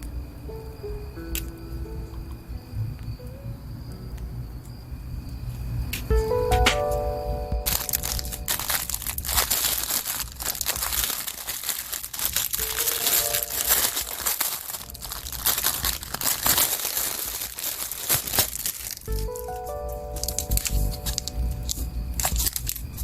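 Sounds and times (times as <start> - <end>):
packaging crinkling and rustling: 7.6 - 23.0.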